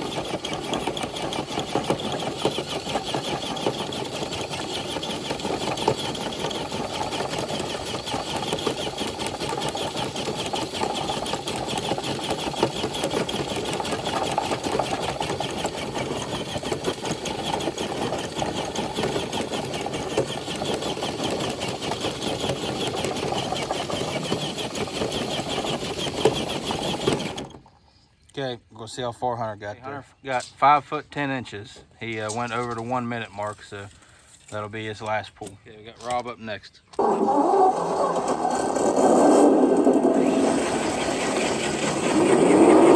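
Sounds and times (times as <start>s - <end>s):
electric motor and gears whining: 0.0s - 27.7s, 37.0s - 42.9s.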